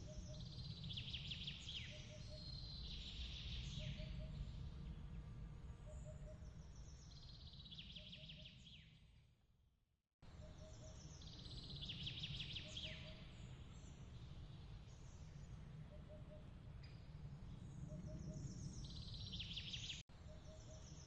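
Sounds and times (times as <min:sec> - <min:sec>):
low steady rumble: 0:00.0 - 0:07.4.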